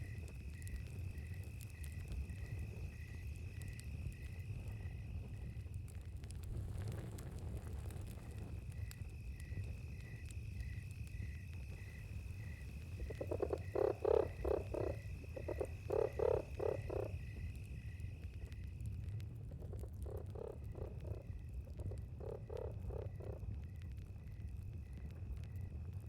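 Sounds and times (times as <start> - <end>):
campfire crackling: 0.0 - 26.0
night insects droning: 0.0 - 26.0
soft insect chirps: 8.6 - 19.0, 19.6 - 25.0
frog croaking: 13.0 - 17.3, 19.6 - 23.5.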